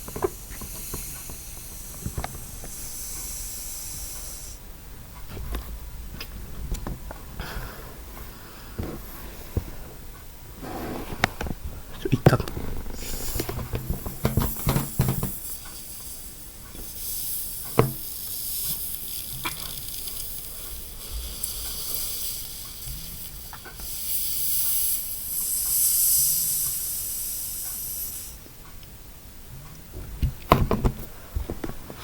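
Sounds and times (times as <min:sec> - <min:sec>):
breath blown into balloon: 0:12.9 - 0:28.4.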